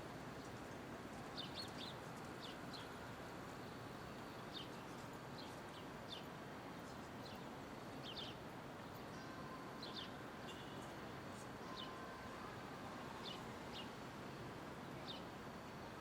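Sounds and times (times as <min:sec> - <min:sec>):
city street hum: 0:00.0 - 0:16.0
small birds chirping: 0:00.4 - 0:12.0, 0:13.0 - 0:14.0, 0:15.0 - 0:15.4.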